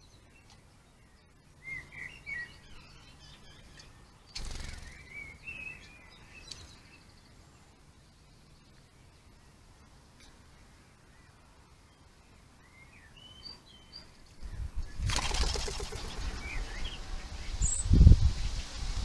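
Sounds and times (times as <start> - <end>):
small birds chirping: 0.0 - 18.9
rustling burst: 15.0 - 16.8.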